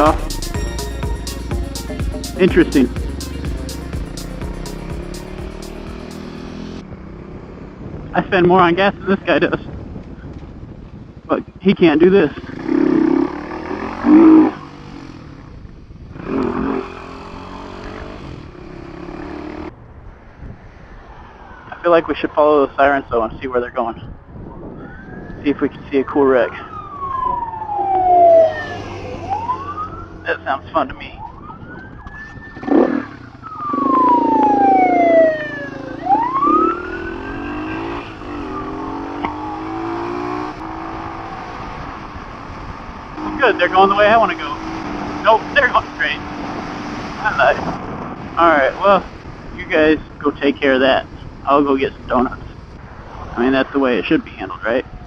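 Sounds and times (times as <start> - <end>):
siren wailing: 0.0 - 6.8, 13.6 - 14.8, 24.6 - 46.4
motorcycle engine revving: 0.0 - 8.2, 12.3 - 19.8, 26.7 - 30.6, 31.2 - 49.4
wind noise on microphone: 6.8 - 13.1, 15.2 - 16.6, 19.7 - 21.3, 22.9 - 28.0, 31.1 - 36.4, 39.8 - 45.1, 46.2 - 55.0.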